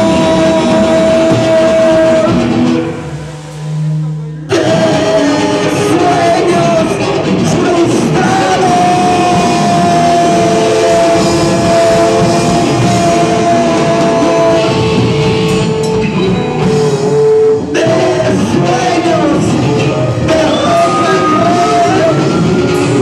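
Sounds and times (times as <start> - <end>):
long held tones: 0.0 - 6.2, 19.8 - 23.0
distorted noise-rock performance: 0.0 - 23.0.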